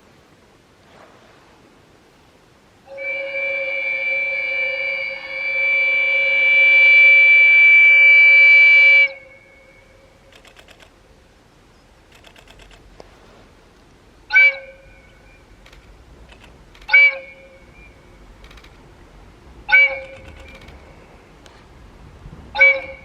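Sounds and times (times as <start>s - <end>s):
train horn blasts: 2.9s - 10.2s, 14.3s - 15.0s, 16.9s - 17.6s, 19.7s - 20.6s, 22.3s - 23.0s.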